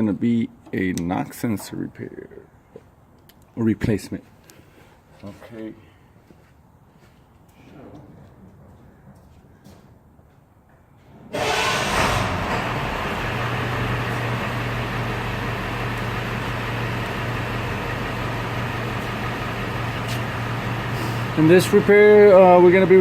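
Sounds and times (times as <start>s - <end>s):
diesel truck engine humming: 11.4s - 23.0s.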